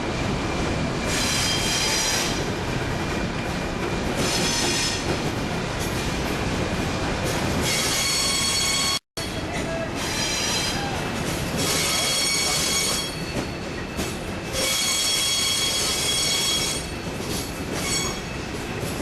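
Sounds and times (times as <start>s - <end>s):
train wheels rumbling on track: 0.0s - 19.0s
high-pitched wheel squeal: 7.6s - 9.0s, 10.0s - 10.8s, 11.6s - 13.5s, 14.6s - 17.0s, 17.8s - 18.3s.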